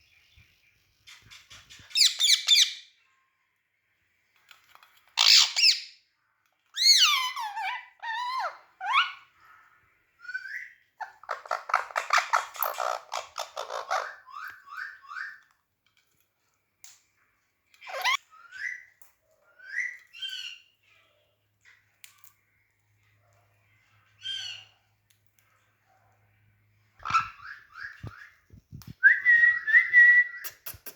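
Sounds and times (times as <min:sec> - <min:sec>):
parrot whistling and squawking: 0:05.2 - 0:05.9, 0:06.8 - 0:09.3, 0:17.8 - 0:18.9, 0:27.0 - 0:28.3.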